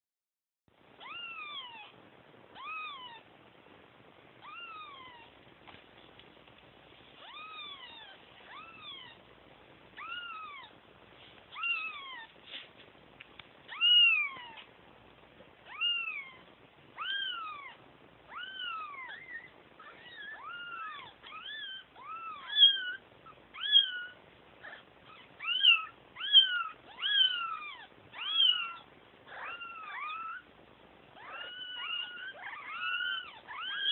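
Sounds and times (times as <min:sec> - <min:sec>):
kittens meowing: 0:04.4 - 0:05.4, 0:07.2 - 0:09.3, 0:10.0 - 0:10.8, 0:11.5 - 0:12.3, 0:13.7 - 0:14.7, 0:15.7 - 0:30.5, 0:31.2 - 0:33.9.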